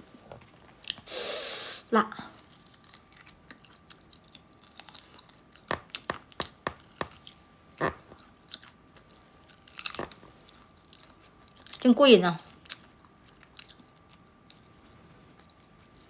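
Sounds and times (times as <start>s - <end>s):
person chewing food: 2.4s - 11.8s, 12.6s - 16.0s.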